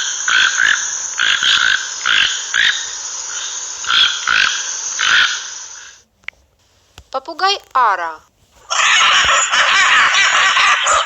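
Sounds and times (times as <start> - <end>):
toucan croaking calls: 0.0 - 6.0
steady high-pitched hiss: 0.0 - 11.0.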